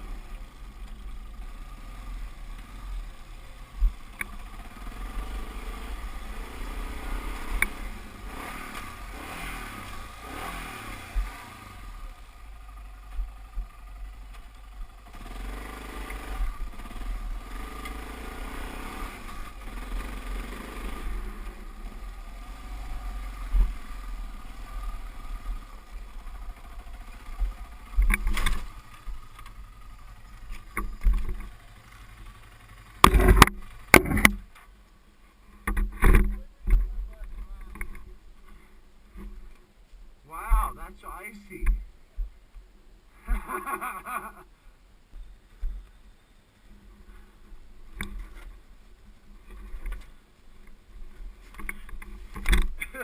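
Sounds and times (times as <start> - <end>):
dirt bike engine revving: 0.0 - 14.2, 14.8 - 34.5.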